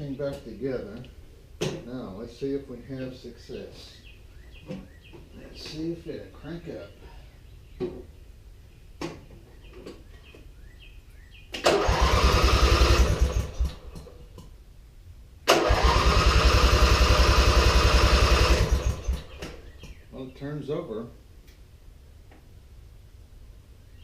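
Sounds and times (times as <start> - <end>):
electric starter cranking engine: 11.6 - 14.2, 15.5 - 19.6.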